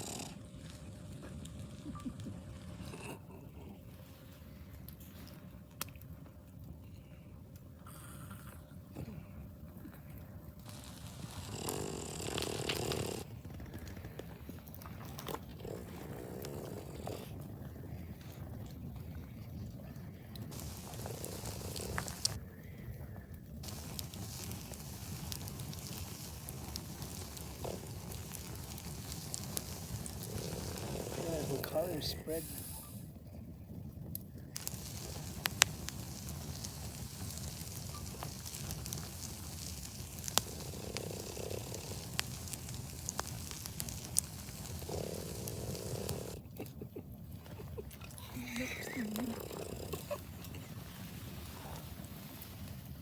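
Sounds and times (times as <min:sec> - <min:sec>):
campfire crackles and pops: 0:00.0 - 0:03.4, 0:04.0 - 0:08.6, 0:09.3 - 0:53.0
sharp pops of fire: 0:20.5 - 0:22.4, 0:23.6 - 0:33.0, 0:34.1 - 0:46.4.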